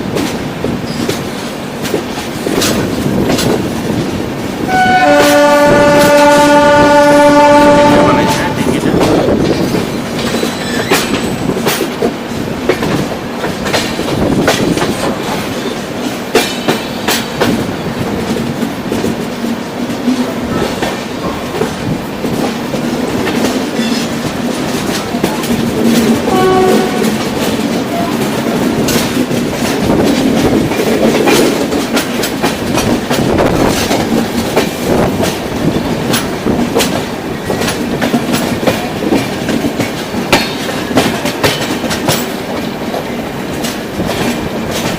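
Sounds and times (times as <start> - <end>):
train rumble: 0.0 - 44.9
wheels clicking over rail joints: 0.0 - 44.9.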